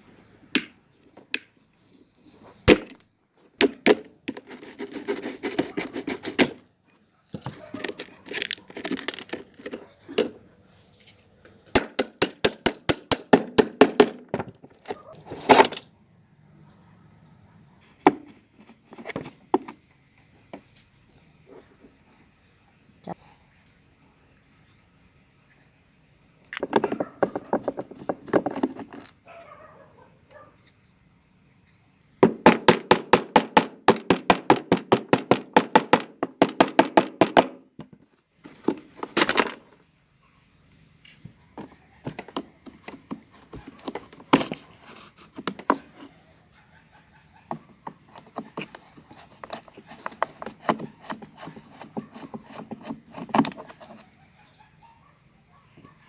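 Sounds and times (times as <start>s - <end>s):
hand tool scraping metal: 3.6s - 6.6s, 14.8s - 15.8s, 42.1s - 46.1s, 47.6s - 54.1s.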